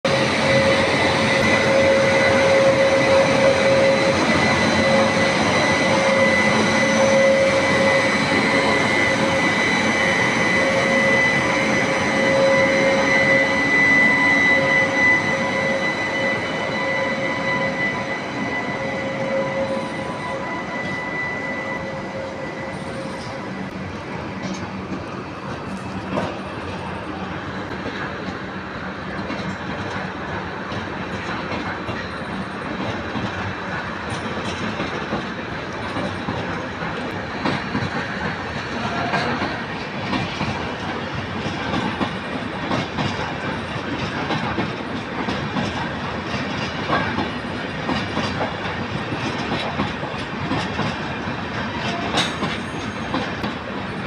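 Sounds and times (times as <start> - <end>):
train wheels rumbling: 0.0 - 54.0
locomotive machinery whine: 0.1 - 54.0.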